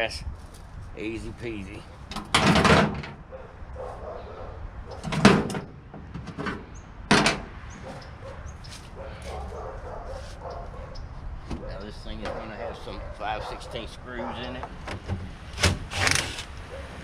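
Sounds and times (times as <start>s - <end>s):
scrap metal knocking and clattering: 2.1s - 3.2s, 5.0s - 7.5s.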